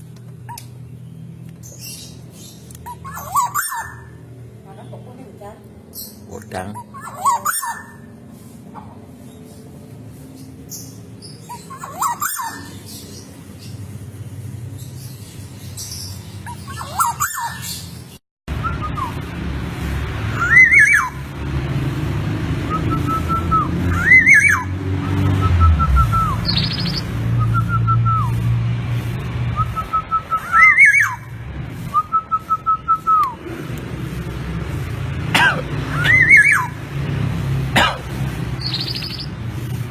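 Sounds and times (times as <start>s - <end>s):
bird calling whistled notes: 20.4s - 21.2s, 22.7s - 24.7s, 25.3s - 28.4s, 29.5s - 31.3s, 35.9s - 36.7s.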